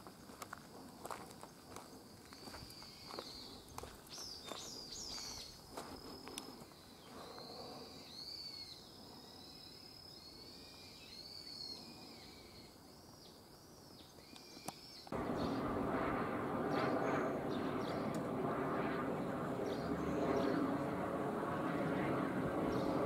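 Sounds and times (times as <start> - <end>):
birds chirping: 1.4 - 15.8, 19.1 - 21.0, 22.4 - 23.0
loud rushing noise: 15.2 - 21.7.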